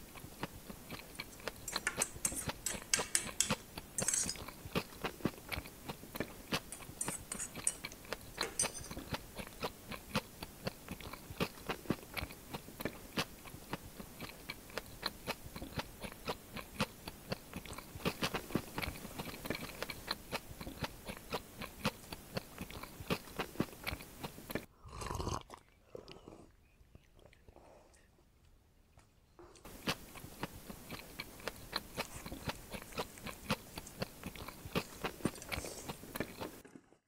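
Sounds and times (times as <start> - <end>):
wet chewing with mouth clicks: 0.0 - 37.0
swallowing a drink: 24.7 - 26.7.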